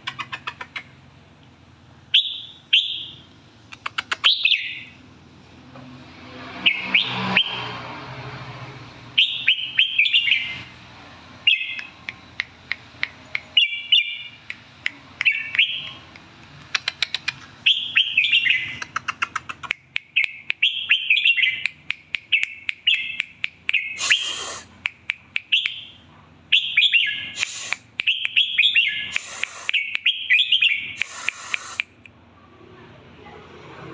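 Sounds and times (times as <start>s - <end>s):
bird singing warbled phrases: 0.0s - 1.0s, 2.1s - 5.0s, 9.2s - 10.7s, 11.4s - 32.0s
sharp clicks: 3.7s - 4.4s, 11.7s - 13.6s, 14.4s - 17.5s, 18.8s - 20.8s, 21.6s - 25.8s, 27.4s - 28.5s, 29.1s - 30.2s, 31.0s - 32.1s.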